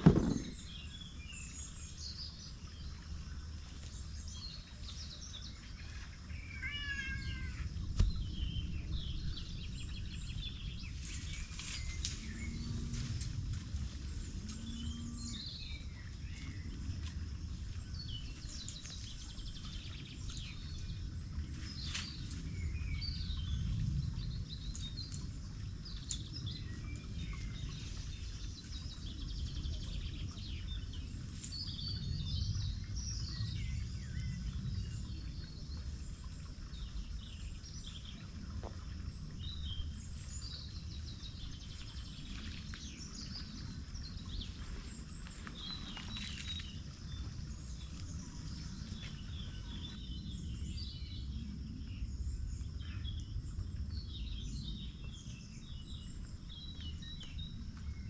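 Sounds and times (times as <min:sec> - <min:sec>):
steady low rumble: 0:00.0 - 0:58.0
birds chirping and calling: 0:05.6 - 0:13.3, 0:42.2 - 0:50.3.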